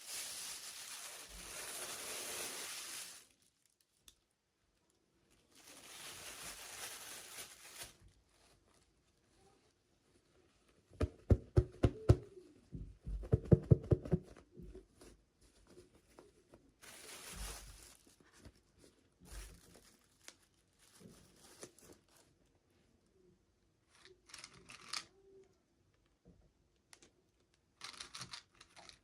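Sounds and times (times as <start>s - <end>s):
packaging tearing and crinkling: 0.0s - 3.8s, 5.6s - 8.0s, 16.8s - 18.2s.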